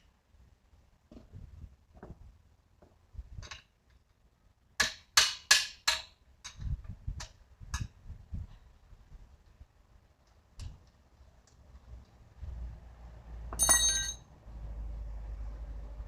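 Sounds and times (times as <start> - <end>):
tools clicking and knocking: 3.4 - 4.2, 4.8 - 7.9.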